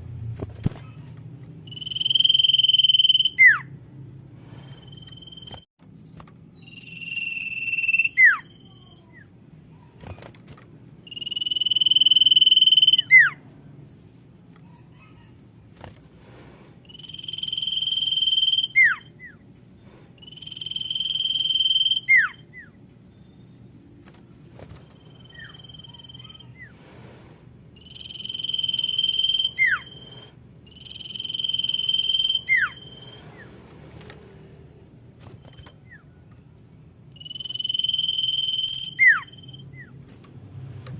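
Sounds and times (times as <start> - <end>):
bird whistling calls: 1.6 - 3.7, 6.5 - 9.1, 11.1 - 13.4, 16.9 - 19.4, 20.2 - 23.6, 25.0 - 26.7, 27.8 - 33.5, 37.1 - 40.0.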